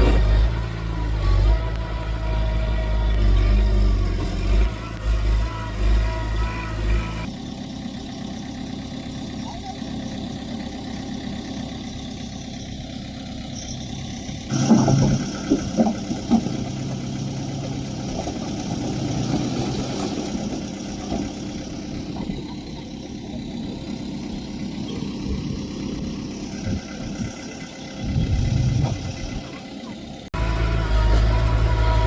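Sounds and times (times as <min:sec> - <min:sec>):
diesel engine running: 0:00.0 - 0:32.0
metal knocks and clanks: 0:14.5 - 0:17.0
low rumble: 0:23.6 - 0:29.5.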